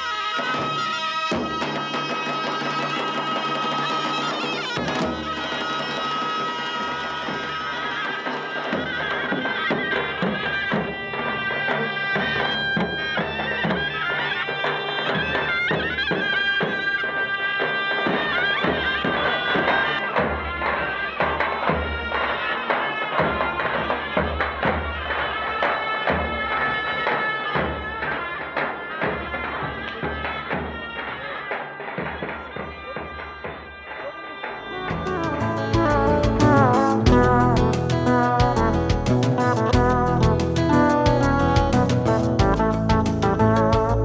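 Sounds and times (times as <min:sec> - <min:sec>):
reedy wind instrument melody: 0:00.0 - 0:32.0, 0:34.1 - 0:44.0
steady drum beat: 0:00.4 - 0:17.1, 0:34.6 - 0:44.0
held drone: 0:34.8 - 0:44.0.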